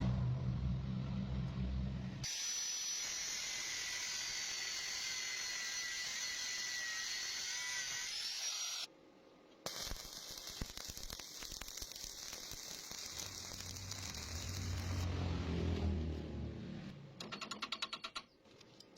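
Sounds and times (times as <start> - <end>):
welding arc crackling and hissing: 2.2 - 8.9, 9.6 - 15.1
welding sharp pops: 9.6 - 15.0.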